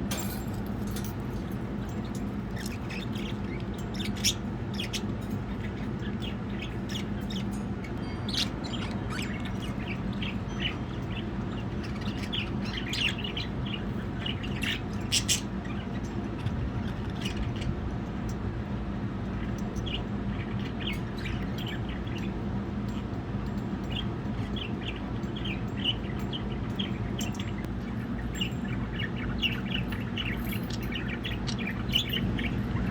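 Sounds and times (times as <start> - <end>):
low steady hum: 0.0 - 32.9
budgerigars chirping: 1.9 - 17.7, 23.9 - 32.9.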